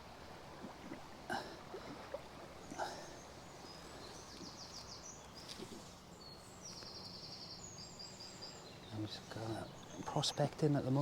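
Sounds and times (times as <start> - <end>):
river water: 0.0 - 11.0
small bird singing: 3.1 - 10.5.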